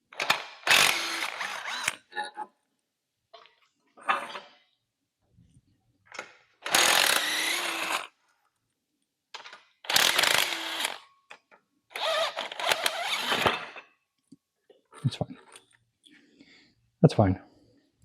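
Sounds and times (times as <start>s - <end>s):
handheld power tool spinning bolts: 0.2s - 2.0s, 6.6s - 8.1s, 9.8s - 11.0s, 11.9s - 13.8s.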